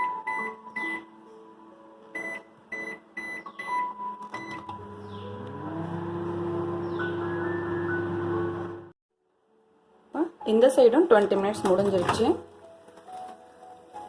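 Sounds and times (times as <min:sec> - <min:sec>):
short keypad beeps: 0:02.2 - 0:04.7
microwave oven humming: 0:04.4 - 0:08.9.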